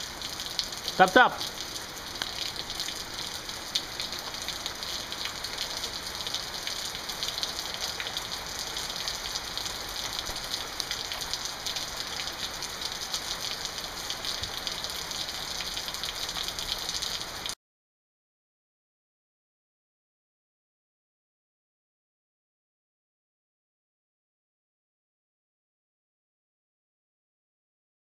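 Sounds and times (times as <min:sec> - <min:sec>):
rain pattering on surfaces: 0:00.0 - 0:17.6.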